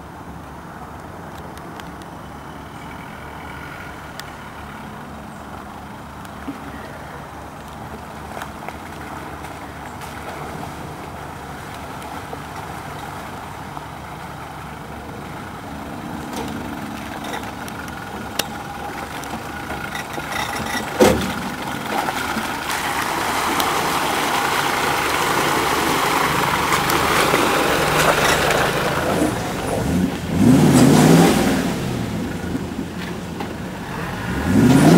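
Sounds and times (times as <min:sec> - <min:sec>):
off-road vehicle engine running: 0:02.0 - 0:34.9
rushing noise: 0:15.3 - 0:34.9.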